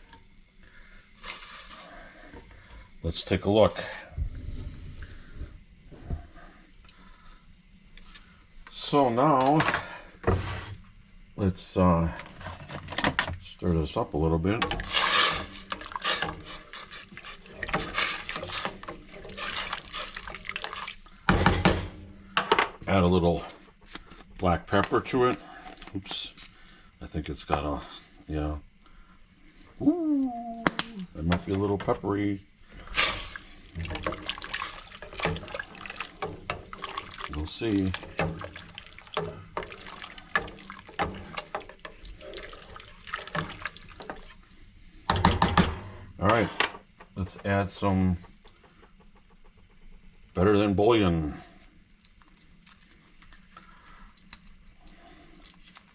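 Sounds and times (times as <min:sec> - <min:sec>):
liquid sloshing from stirring: 0:14.5 - 0:22.2, 0:32.8 - 0:44.6.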